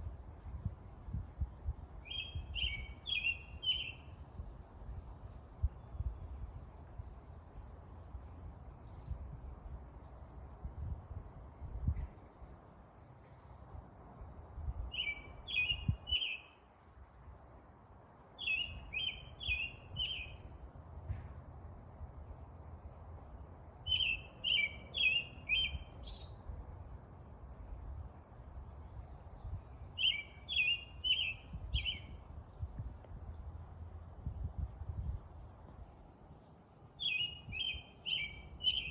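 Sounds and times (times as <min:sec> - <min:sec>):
bird singing short phrase: 0:23.9 - 0:26.9, 0:29.1 - 0:32.8, 0:37.0 - 0:38.9.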